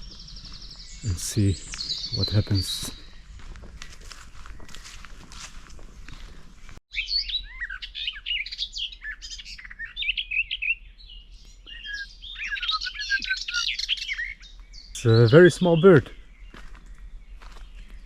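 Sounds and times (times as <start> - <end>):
songbird singing warbles and trills: 0.0 - 3.4, 6.9 - 18.0
faint rustling footsteps: 0.0 - 6.8, 16.3 - 18.0.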